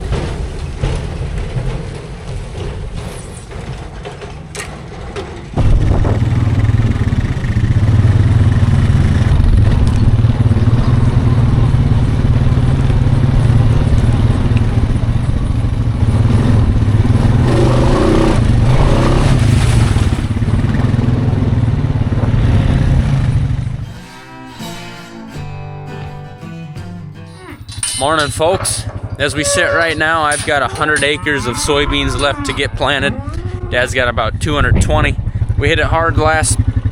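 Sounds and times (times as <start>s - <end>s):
machine engine running: 0.0s - 24.0s, 27.6s - 36.9s
music: 23.8s - 27.7s.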